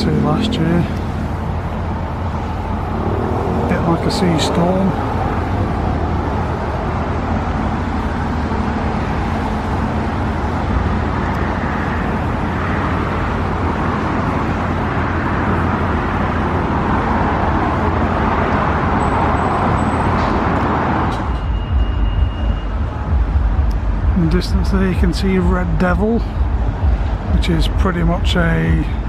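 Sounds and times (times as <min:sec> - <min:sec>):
vehicle passing close by: 0:00.0 - 0:07.6
road traffic rumble: 0:00.0 - 0:29.0.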